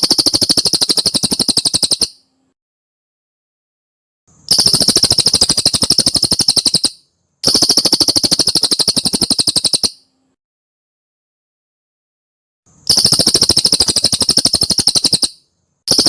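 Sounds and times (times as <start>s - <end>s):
bird trilling: 0.0s - 2.2s, 4.5s - 10.1s, 12.9s - 16.0s.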